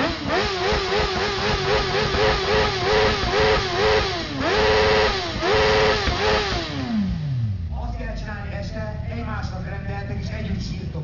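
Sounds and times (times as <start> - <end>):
motorcycle engine revving hard: 0.0 - 7.8.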